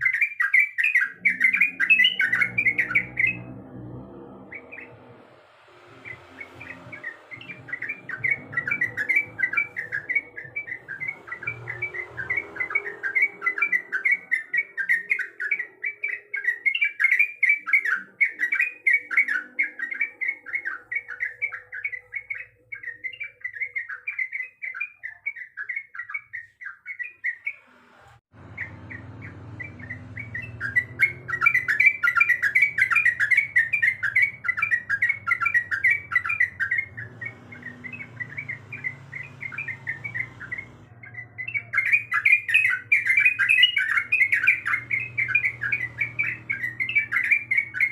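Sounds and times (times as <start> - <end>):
bird chattering song: 0.0 - 27.6, 28.4 - 47.9
low hum: 1.3 - 13.6.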